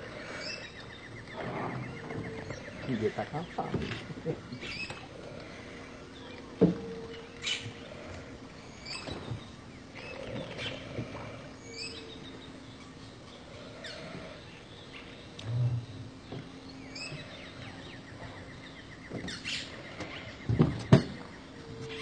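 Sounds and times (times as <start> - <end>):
faint steady hum: 0.0 - 22.0
bird chirps and calls: 0.2 - 5.1.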